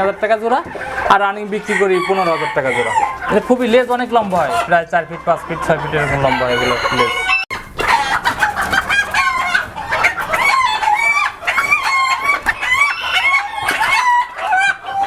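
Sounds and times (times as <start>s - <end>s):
chickens clucking: 0.0s - 15.0s
roosters crowing: 0.0s - 15.0s.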